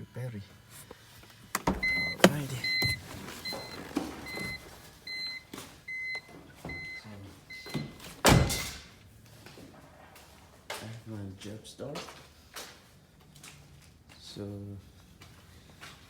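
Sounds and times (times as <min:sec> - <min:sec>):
car warning beeps: 0:01.4 - 0:08.0.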